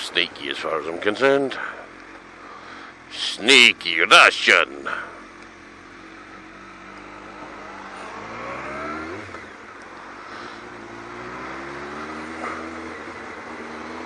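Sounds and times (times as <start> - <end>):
motorcycle engine accelerating: 4.8 - 14.0.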